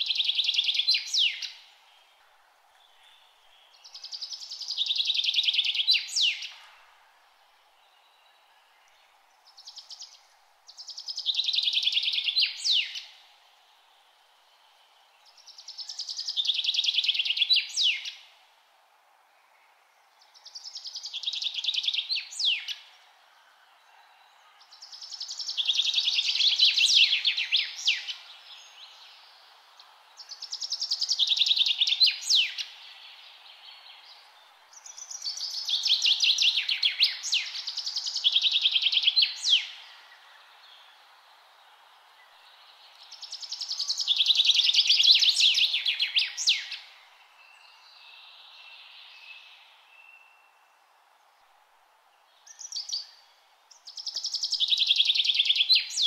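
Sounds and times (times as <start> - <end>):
songbird trilling song: 0.0 - 6.8, 7.8 - 13.3, 15.2 - 18.3, 19.5 - 23.0, 23.8 - 29.5, 30.1 - 41.1, 42.2 - 50.8, 52.3 - 56.0
faint steady hiss: 0.0 - 56.0.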